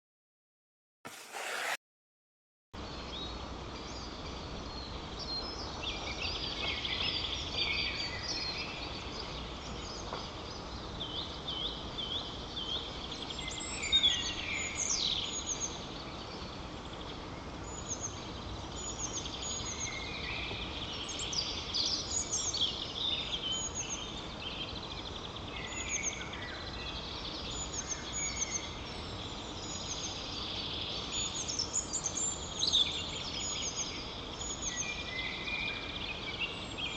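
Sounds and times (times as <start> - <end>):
steady low background noise: 2.8 - 36.9.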